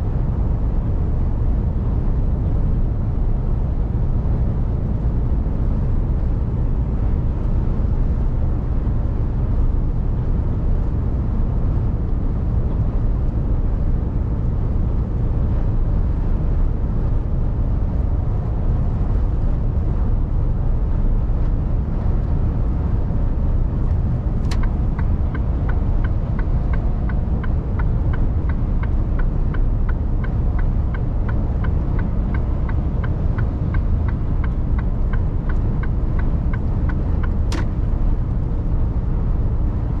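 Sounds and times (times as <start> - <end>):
truck engine and road rumble: 0.0 - 40.0
single click: 37.5 - 37.7.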